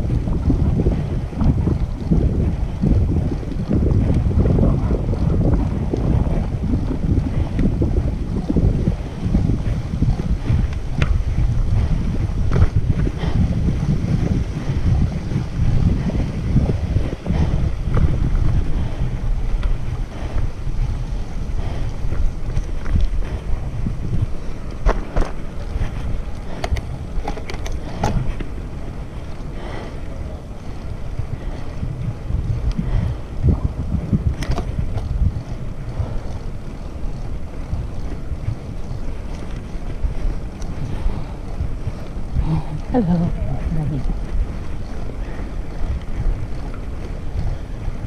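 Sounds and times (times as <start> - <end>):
wind buffeting microphone: 0.0 - 48.0
faint ticks: 34.3 - 43.0.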